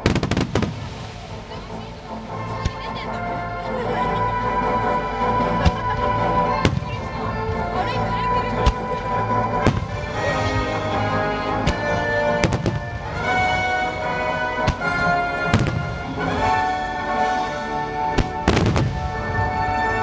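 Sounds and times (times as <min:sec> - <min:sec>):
fireworks bangs: 0:00.0 - 0:01.8, 0:08.6 - 0:10.8, 0:11.6 - 0:20.0
music with long held notes: 0:00.0 - 0:20.0.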